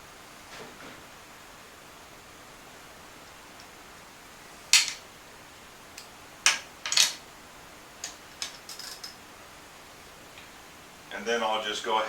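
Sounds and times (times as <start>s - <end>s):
metal hand tools clanking: 4.7s - 5.0s, 6.5s - 7.2s, 8.0s - 9.2s.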